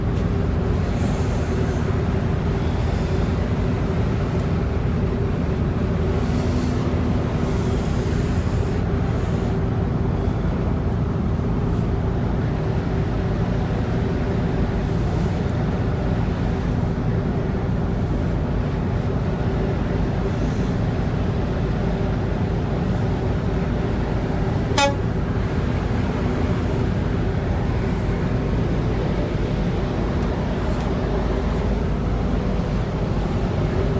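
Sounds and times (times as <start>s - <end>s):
low rumble of engines: 0.0s - 33.9s
wind: 0.0s - 33.9s
ship horns sounding: 24.5s - 26.2s.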